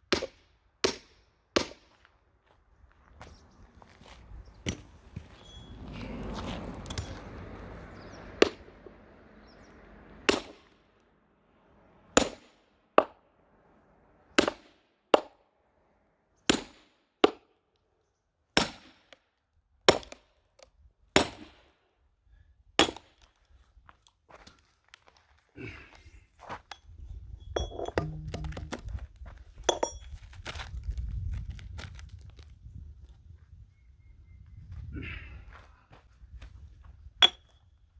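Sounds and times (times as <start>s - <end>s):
axe and hammer strikes on wood: 0.1s - 2.0s, 10.3s - 10.6s, 27.7s - 28.9s.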